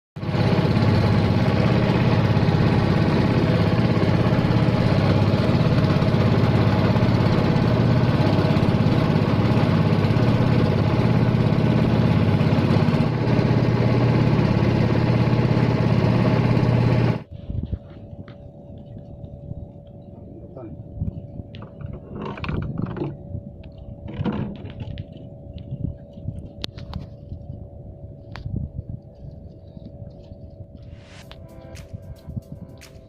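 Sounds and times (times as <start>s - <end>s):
small engine running: 0.2s - 17.3s.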